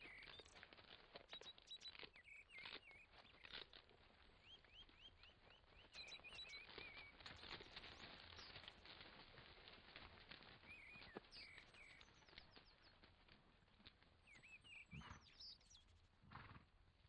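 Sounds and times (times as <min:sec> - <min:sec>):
bird chirps: 0:00.0 - 0:00.6, 0:01.3 - 0:03.6, 0:04.4 - 0:07.6, 0:10.7 - 0:12.8, 0:14.2 - 0:16.0.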